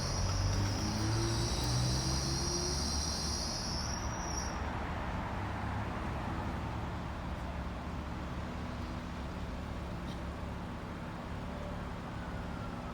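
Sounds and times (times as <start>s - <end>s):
vehicle engine running low: 0.0s - 3.1s.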